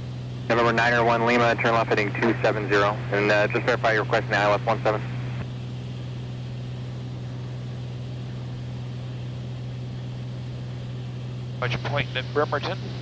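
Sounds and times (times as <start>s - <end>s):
propeller aircraft engine droning: 0.0s - 13.0s.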